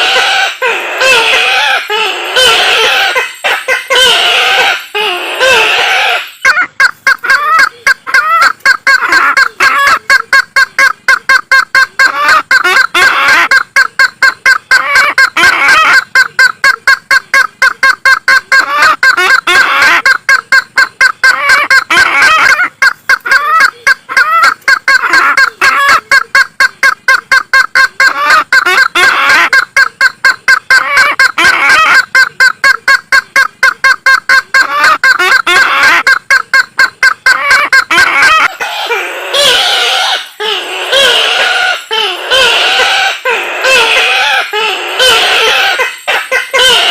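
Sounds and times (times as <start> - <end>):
bird call rapid repeated notes: 0.0 - 46.9.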